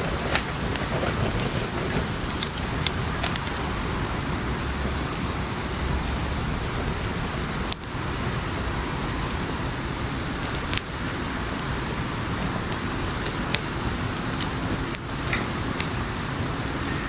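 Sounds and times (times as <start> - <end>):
campfire crackles: 0.0 - 17.0
campfire hissing: 0.0 - 17.0.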